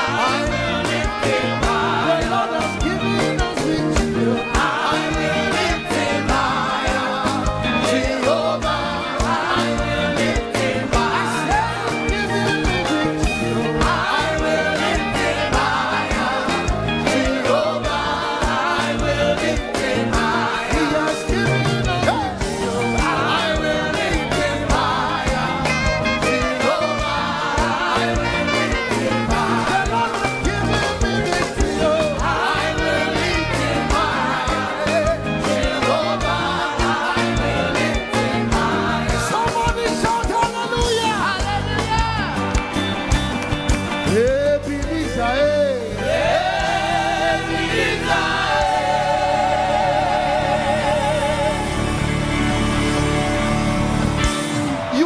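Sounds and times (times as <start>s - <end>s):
band with steady beat: 0.0s - 55.0s
voices singing gospel: 0.0s - 55.0s
choir-like chord: 13.4s - 29.9s, 46.0s - 54.2s.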